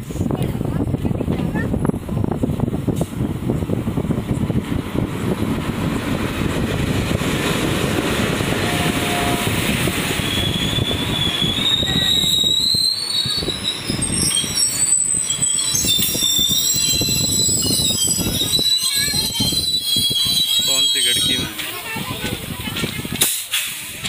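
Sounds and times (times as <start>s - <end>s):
train wheels rumbling and clattering: 0.0s - 24.0s
wheel and brake squeals: 8.7s - 21.7s.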